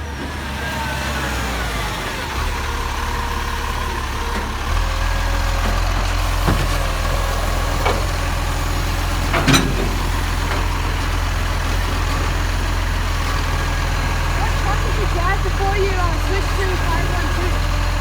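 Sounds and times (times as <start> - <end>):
garbage truck engine humming: 0.0 - 18.0
knocks and clunks: 5.4 - 12.7.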